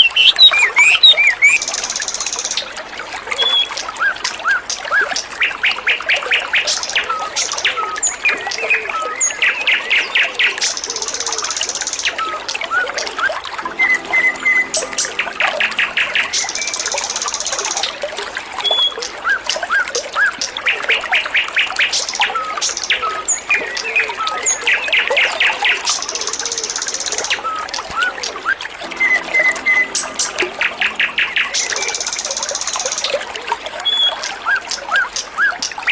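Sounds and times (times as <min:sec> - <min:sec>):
songbird singing trills: 0:00.0 - 0:02.4
trickle of flowing water: 0:00.0 - 0:35.9.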